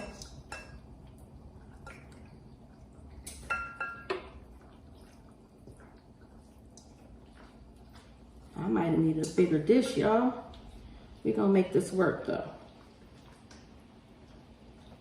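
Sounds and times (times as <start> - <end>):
spoon clinking against dishware: 3.2 - 4.3.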